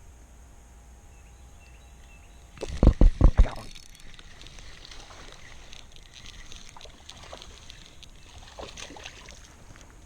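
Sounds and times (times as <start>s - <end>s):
small ticks: 1.2s - 10.0s
water splashing: 2.4s - 10.0s.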